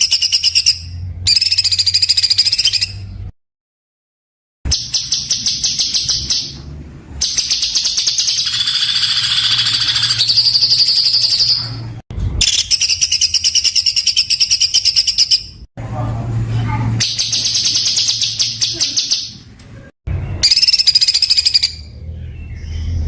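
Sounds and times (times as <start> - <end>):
songbird rapid trills: 7.2 - 11.6.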